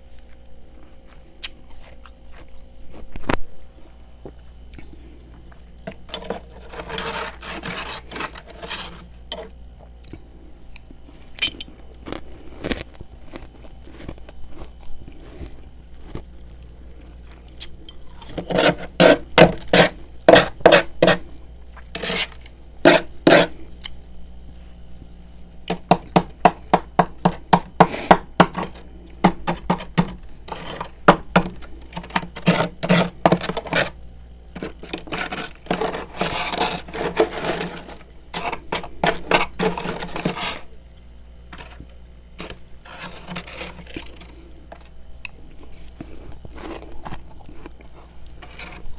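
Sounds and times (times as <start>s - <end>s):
frost being scraped: 6.1s - 9.4s, 18.2s - 21.2s, 22.0s - 23.6s, 27.3s - 34.0s, 34.6s - 40.7s, 41.5s - 41.8s, 42.4s - 44.3s.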